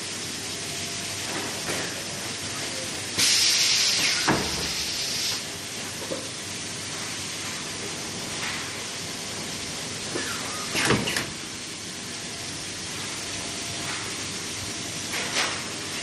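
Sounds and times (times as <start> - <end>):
machine background noise: 0.0 - 16.0
loud hiss: 3.2 - 5.5.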